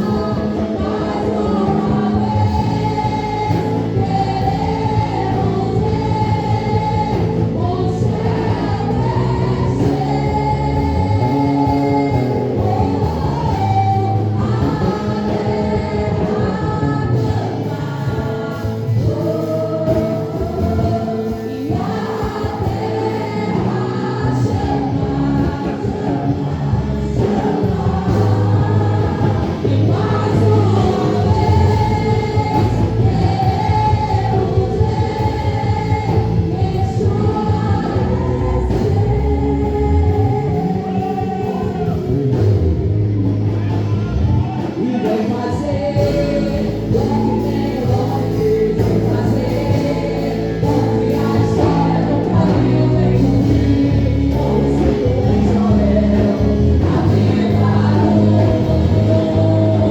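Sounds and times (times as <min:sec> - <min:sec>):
voices singing together: 0:00.0 - 0:59.9.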